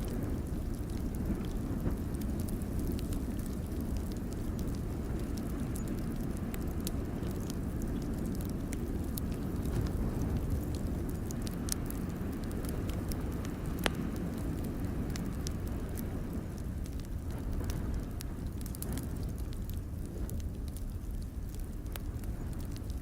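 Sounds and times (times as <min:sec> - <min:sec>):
fire pops and snaps: 0:00.0 - 0:23.0
wood fire crackling: 0:00.0 - 0:23.0.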